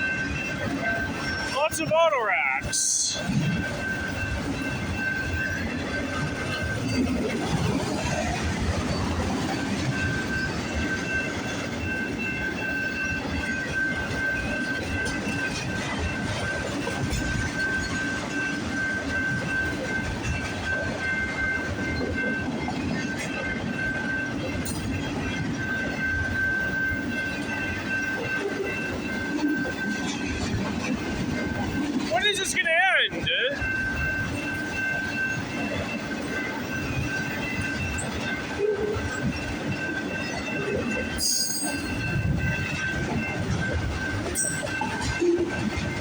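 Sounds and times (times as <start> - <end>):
freight train rolling past: 0.0 - 46.0
wheels clicking over rail joints: 33.2 - 46.0.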